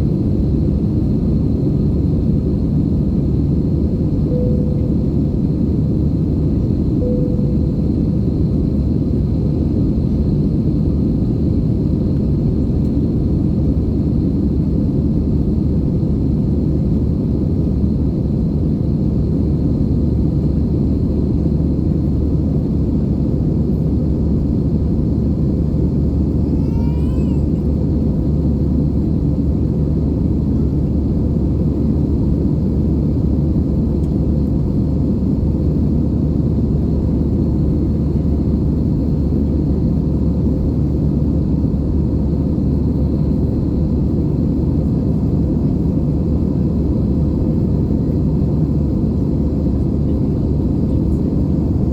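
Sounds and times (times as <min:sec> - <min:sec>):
constant hum: 0:00.0 - 0:51.9
jet cabin engine rumble: 0:00.0 - 0:51.9
brief wavering high sound: 0:04.3 - 0:05.3, 0:07.0 - 0:08.2.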